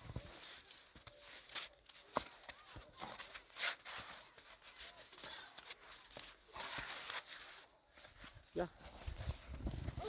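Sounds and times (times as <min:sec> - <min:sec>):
shovel scraping snow: 0:02.9 - 0:08.2.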